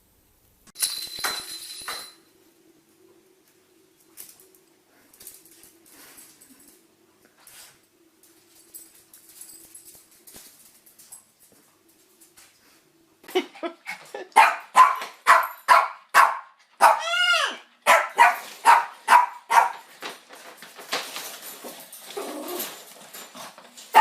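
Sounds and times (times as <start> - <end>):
dog barking rapidly: 14.4 - 17.2, 17.8 - 19.8
dog crying: 16.8 - 18.4.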